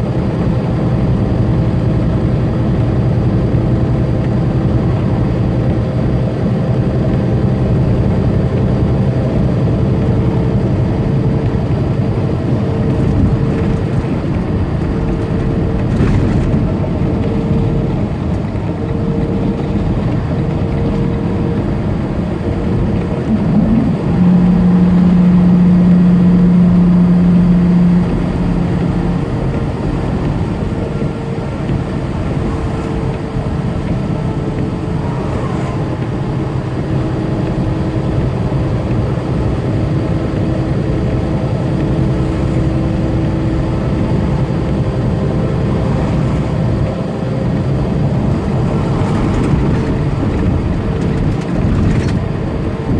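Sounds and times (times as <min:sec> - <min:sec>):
diesel engine drone: 0:00.0 - 0:52.9
loud steady hum: 0:00.0 - 0:52.9
road noise: 0:00.0 - 0:52.9.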